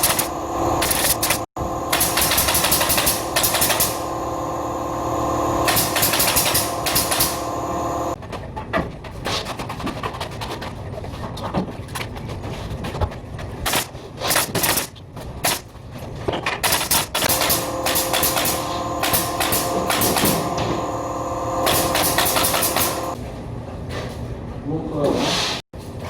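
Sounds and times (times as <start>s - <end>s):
machine whine: 0.0s - 8.2s, 17.2s - 23.2s.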